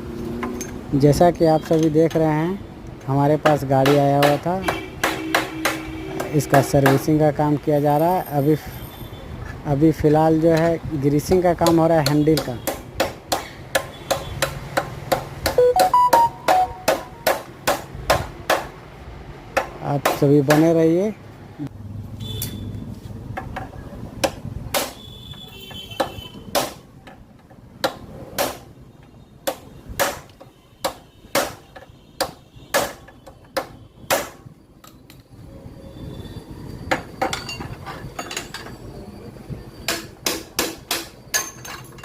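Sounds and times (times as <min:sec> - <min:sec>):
hammer knocking on metal: 0:11.6 - 0:18.7.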